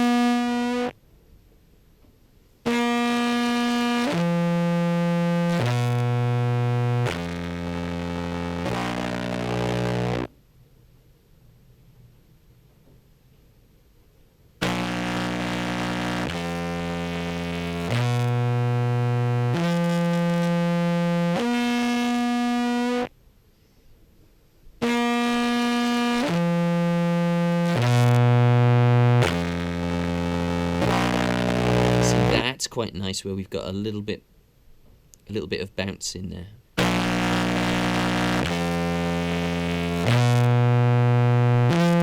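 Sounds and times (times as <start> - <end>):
distorted low clarinet notes: 0.0 - 0.9, 2.7 - 10.3, 14.6 - 23.1, 24.8 - 32.5, 36.8 - 42.0.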